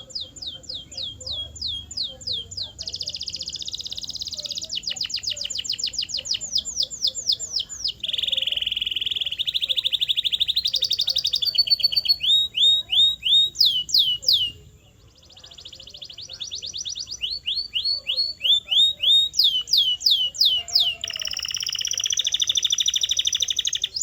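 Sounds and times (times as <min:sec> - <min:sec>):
canary singing: 0:00.0 - 0:24.0.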